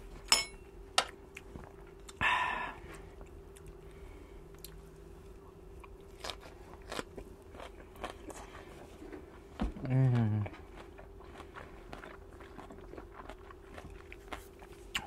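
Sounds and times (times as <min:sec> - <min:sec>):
person chewing crunchy food: 0:03.0 - 0:15.0.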